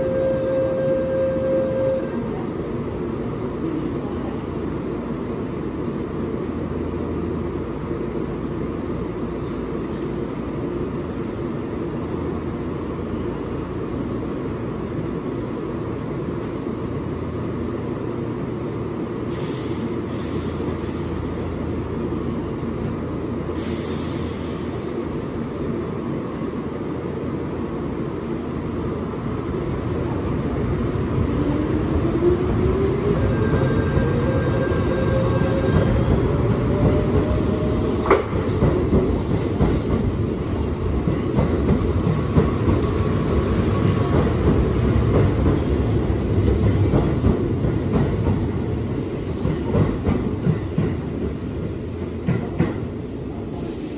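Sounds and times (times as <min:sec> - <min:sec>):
compressed-air hiss: 0:19.3 - 0:21.5, 0:23.6 - 0:25.5, 0:53.5 - 0:53.9.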